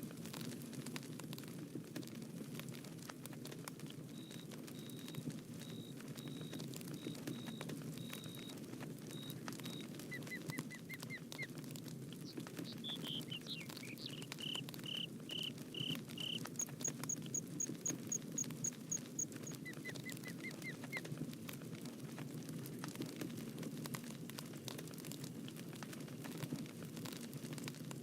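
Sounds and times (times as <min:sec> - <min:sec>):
wood fire crackling and popping: 0:00.0 - 0:28.0
birds singing: 0:09.6 - 0:11.5, 0:12.2 - 0:21.0.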